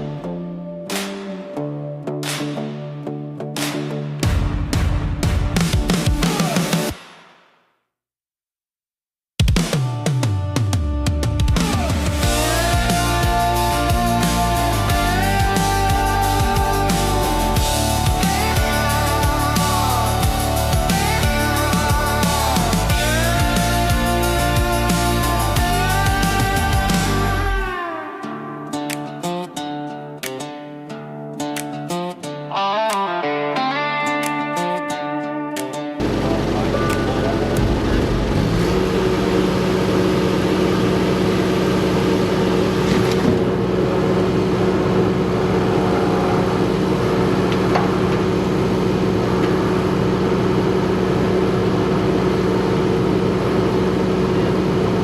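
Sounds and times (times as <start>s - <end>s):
strummed guitar chords: 0.0s - 6.9s, 9.6s - 55.0s
engine running steadily: 11.7s - 27.6s, 36.0s - 55.0s.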